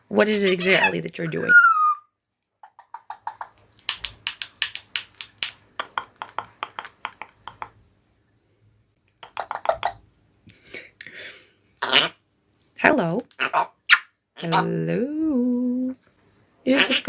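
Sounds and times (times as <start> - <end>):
parrot clicking: 2.6 - 7.8, 9.2 - 10.0.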